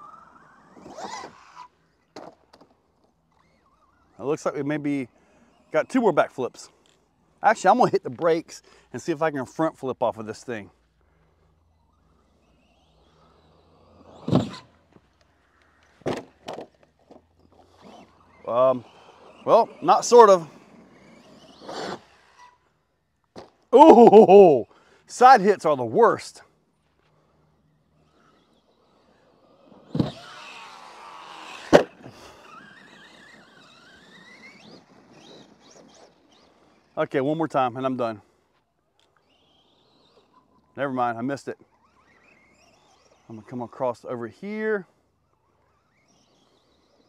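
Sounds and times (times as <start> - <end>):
toy truck thudding on dirt: 0.0 - 4.1, 11.8 - 19.8, 20.6 - 22.6, 23.2 - 23.7, 27.9 - 37.0
faint motor whine: 0.0 - 47.0
thud: 16.0 - 16.7.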